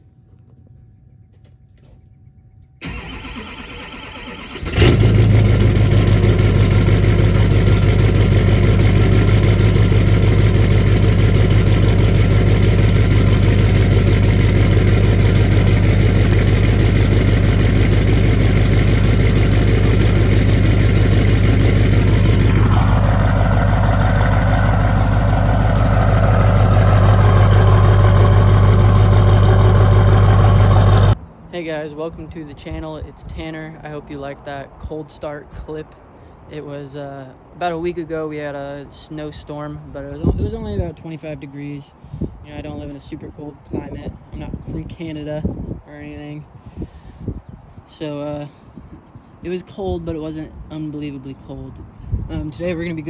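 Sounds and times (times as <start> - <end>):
starter motor cranking: 2.8 - 31.2
truck engine idling: 2.8 - 31.2.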